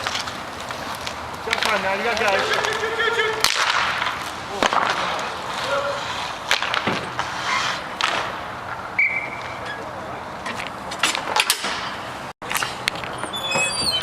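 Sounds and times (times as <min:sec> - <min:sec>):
sticks and puck clacking: 0:00.0 - 0:09.6
skate wheels rumbling on rink: 0:00.0 - 0:13.3
high squeal: 0:09.0 - 0:09.9, 0:13.1 - 0:14.0.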